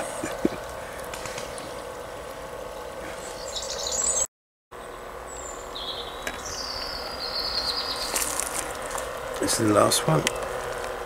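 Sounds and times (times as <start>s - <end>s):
low hum: 0.0s - 11.0s
small birds chirping: 2.7s - 11.0s.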